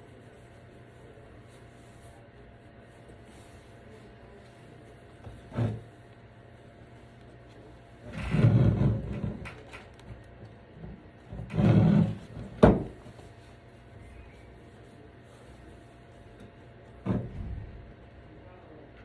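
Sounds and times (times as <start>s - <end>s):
cord rubbing and scraping in tube: 8.0s - 9.4s, 11.3s - 12.5s.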